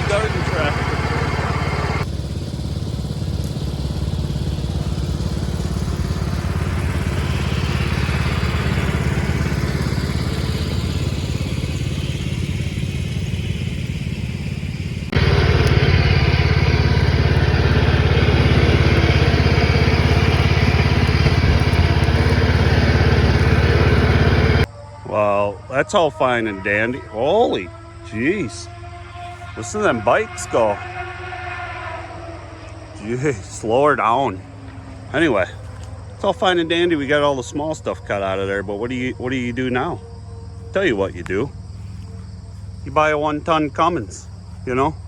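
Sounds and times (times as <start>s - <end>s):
garden tractor engine running: 0.0s - 31.2s, 32.5s - 45.0s
branches dragging: 15.2s - 24.6s, 34.5s - 36.1s.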